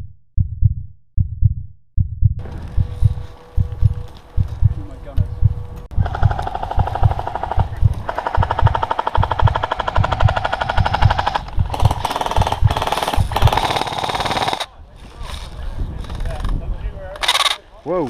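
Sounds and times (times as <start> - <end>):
airsoft rifle firing: 6.0 - 14.7, 17.2 - 17.6.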